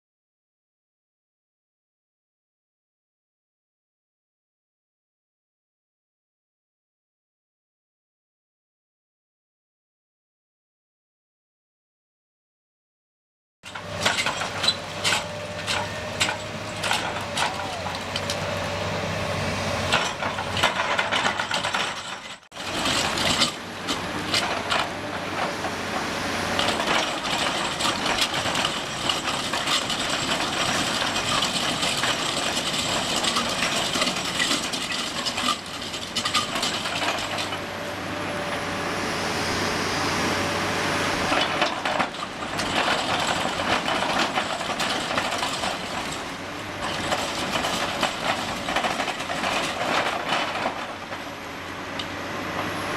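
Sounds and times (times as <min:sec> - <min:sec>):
rock grinder grinding rock: 0:13.7 - 0:37.8, 0:41.1 - 0:52.7
excavator diesel engine running: 0:13.7 - 0:52.9.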